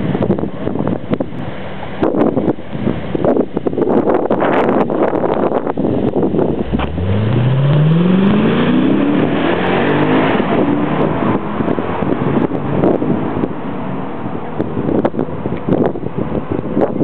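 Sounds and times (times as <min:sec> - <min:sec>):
wind noise on microphone: 0:00.0 - 0:17.0
car engine accelerating: 0:06.3 - 0:14.0.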